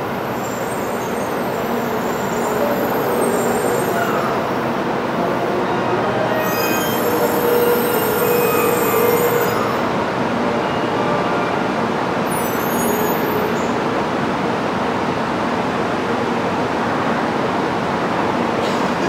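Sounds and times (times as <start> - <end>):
train rumbling into a station: 0.0 - 19.0
high-pitched train wheel squeals: 0.1 - 4.6, 6.2 - 10.0, 12.2 - 13.8.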